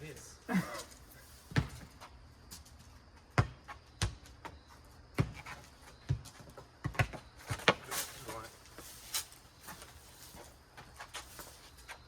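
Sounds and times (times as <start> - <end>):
ball bouncing thumps: 1.5 - 2.1, 3.3 - 4.3, 5.2 - 7.8.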